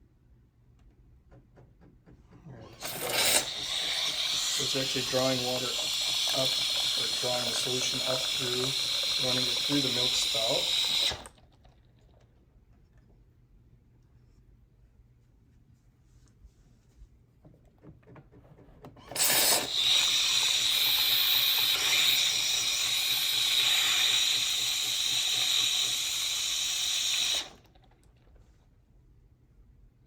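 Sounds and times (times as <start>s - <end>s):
coffee machine milk system hissing: 2.5s - 11.5s, 19.0s - 28.0s.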